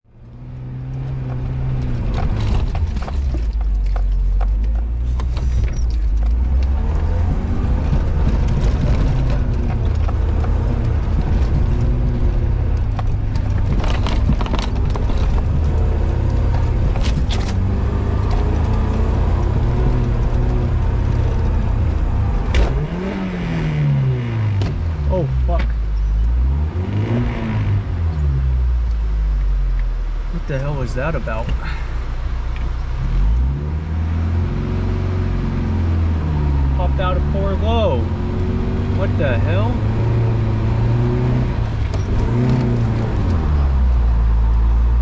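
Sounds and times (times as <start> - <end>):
vehicle engine droning under load: 0.0 - 45.0
vehicle knocks and rattles: 1.0 - 22.9.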